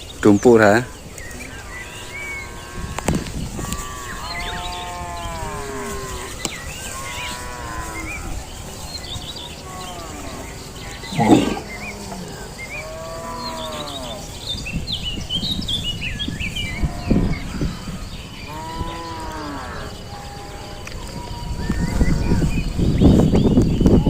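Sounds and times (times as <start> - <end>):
cattle mooing: 1.4 - 14.3, 18.5 - 22.6.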